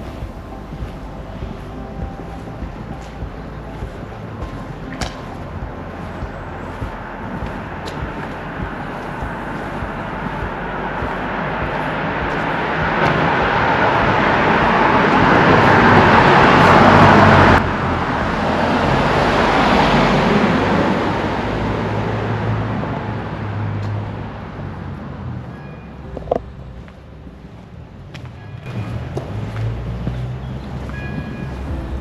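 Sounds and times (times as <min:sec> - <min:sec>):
vehicle passing by: 0:00.0 - 0:25.5
low engine hum: 0:00.0 - 0:32.0.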